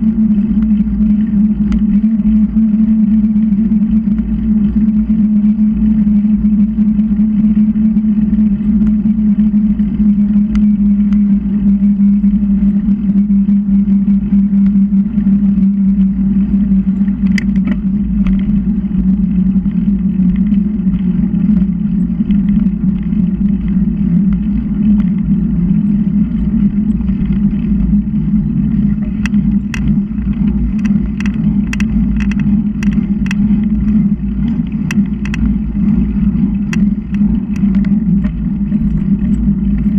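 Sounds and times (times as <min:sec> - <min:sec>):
wind and road noise: 0:00.0 - 0:39.9
sharp clicks or rattles: 0:29.2 - 0:33.5, 0:34.8 - 0:35.5.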